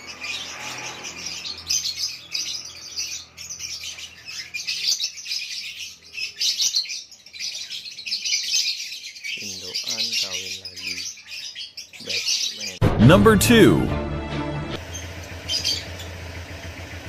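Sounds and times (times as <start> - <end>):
lovebirds chirping: 0.0 - 12.8.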